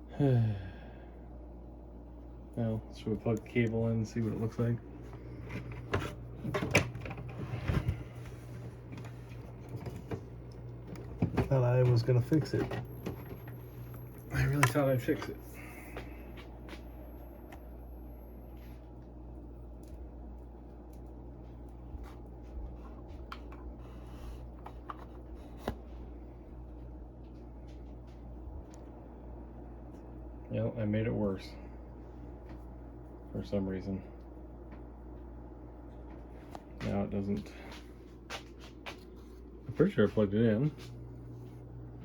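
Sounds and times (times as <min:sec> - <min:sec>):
steady low hum: 0:00.0 - 0:42.0
hands handling parts and cables: 0:03.2 - 0:17.6, 0:18.6 - 0:26.0.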